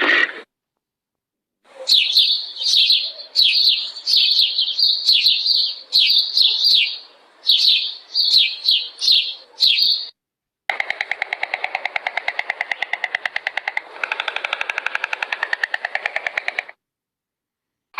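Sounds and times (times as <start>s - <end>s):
songbird chirping: 1.7s - 10.2s.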